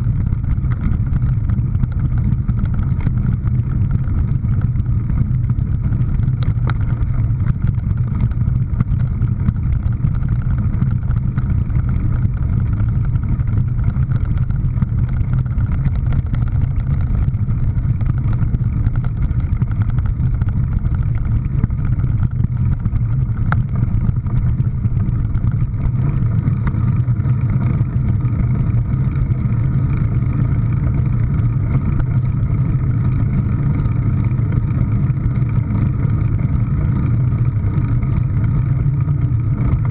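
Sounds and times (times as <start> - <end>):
vehicle engine droning: 0.0 - 39.9.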